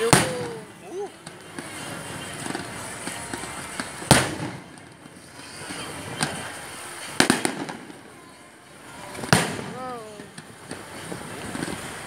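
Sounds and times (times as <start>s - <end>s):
firework shells bursting: 0.0s - 8.0s.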